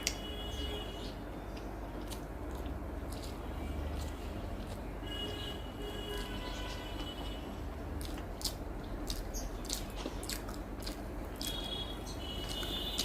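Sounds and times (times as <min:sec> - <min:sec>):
chewing and biting: 0:01.5 - 0:05.4, 0:07.8 - 0:13.0.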